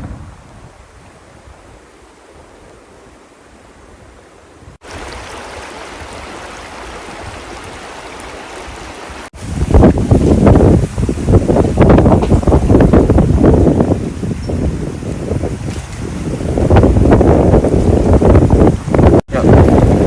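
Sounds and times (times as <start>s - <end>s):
river water rushing: 0.8s - 11.6s.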